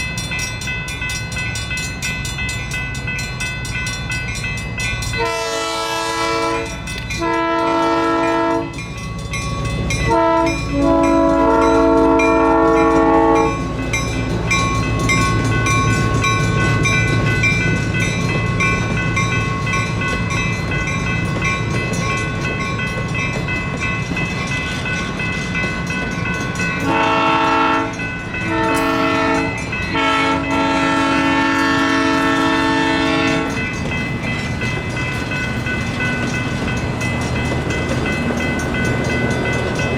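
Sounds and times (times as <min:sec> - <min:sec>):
electronic crossing bells ringing: 0:00.0 - 0:39.9
train rumbling: 0:00.0 - 0:39.9
locomotive air horn: 0:05.2 - 0:08.8, 0:10.1 - 0:13.6, 0:26.8 - 0:33.6.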